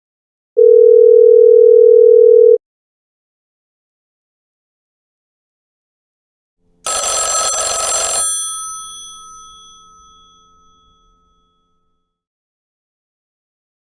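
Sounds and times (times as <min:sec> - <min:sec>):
telephone bell ringing: 0:00.6 - 0:02.6, 0:06.9 - 0:11.1.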